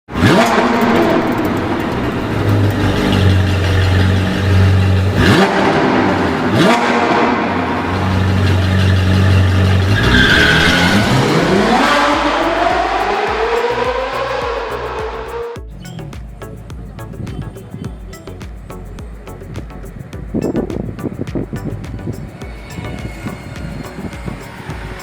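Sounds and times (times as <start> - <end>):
car engine revving: 0.1 - 15.6.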